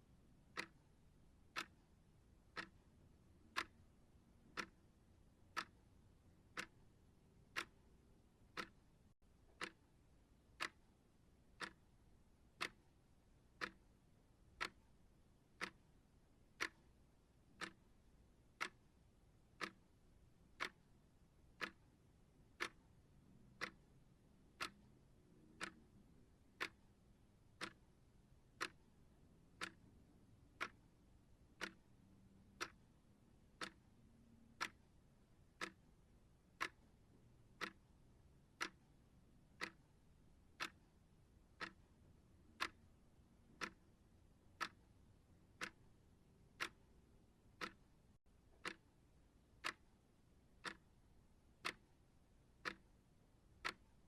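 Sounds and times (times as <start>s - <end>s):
clock ticking: 0.4s - 26.9s, 27.5s - 54.0s.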